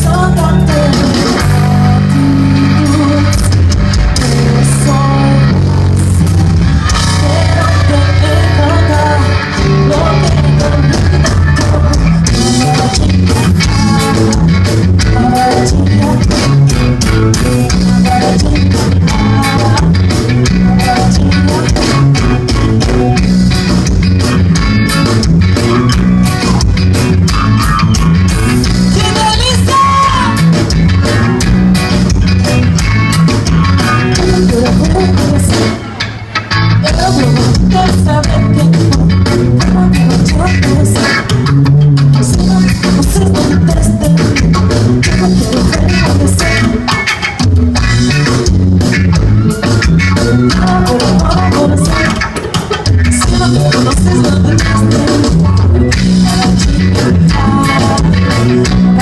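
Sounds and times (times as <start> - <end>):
person singing: 0.0 - 23.4, 28.6 - 30.6, 33.9 - 36.1, 36.8 - 41.4, 42.0 - 47.6, 50.1 - 59.0
bass guitar: 0.0 - 59.0
drum kit: 0.0 - 59.0
electric guitar: 0.0 - 59.0.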